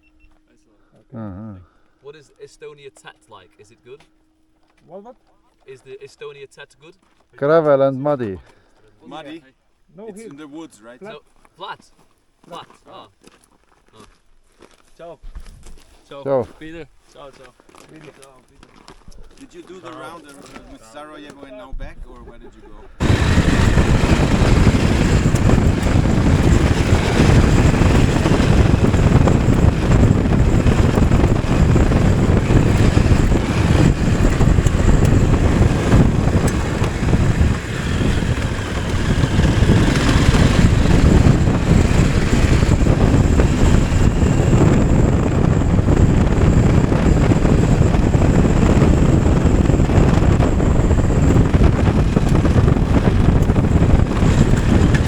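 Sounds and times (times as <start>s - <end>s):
motorcycle engine: 23.0s - 55.0s
wind rush on microphone: 23.0s - 55.0s.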